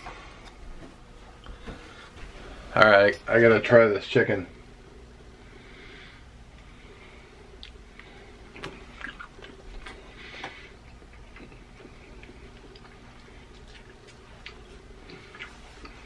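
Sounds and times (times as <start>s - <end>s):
low room hum: 0.0s - 16.0s
person chewing: 7.5s - 16.0s.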